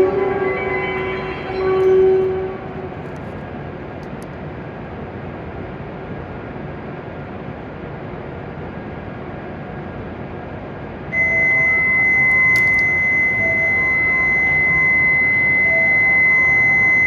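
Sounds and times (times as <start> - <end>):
train horn: 0.0 - 3.3, 11.2 - 17.0
train and station rumble: 0.0 - 17.0.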